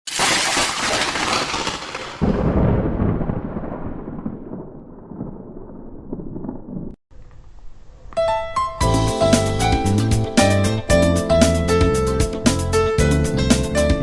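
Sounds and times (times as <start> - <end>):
thunderclap and rolling rumble: 2.2 - 7.0.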